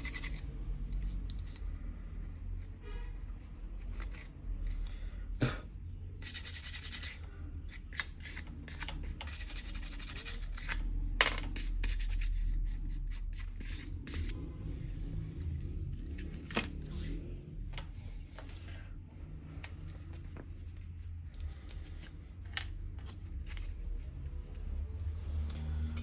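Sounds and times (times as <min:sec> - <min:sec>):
hand tools scraping phone: 0:00.0 - 0:01.8, 0:02.4 - 0:05.1, 0:05.9 - 0:10.9, 0:11.5 - 0:14.5
low steady hum: 0:00.0 - 0:26.0.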